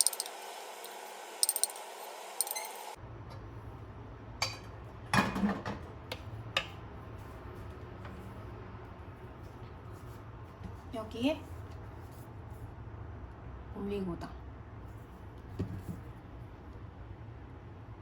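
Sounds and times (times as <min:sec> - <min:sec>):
kitchenware clinking: 0:00.0 - 0:02.9, 0:04.4 - 0:05.8.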